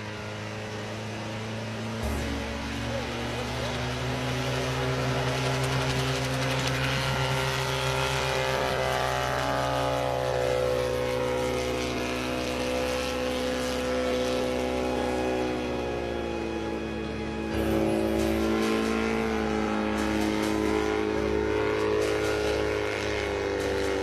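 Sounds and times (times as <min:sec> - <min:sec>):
helicopter engine and rotor: 0:00.0 - 0:24.0
high whine falling in pitch: 0:02.0 - 0:05.0.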